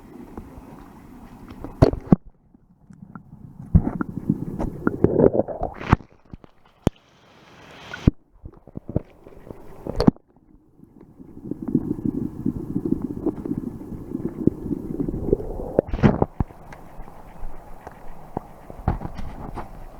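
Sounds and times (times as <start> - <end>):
water sloshing and gurgling: 0.0 - 19.9
short rising hiss: 7.1 - 8.1.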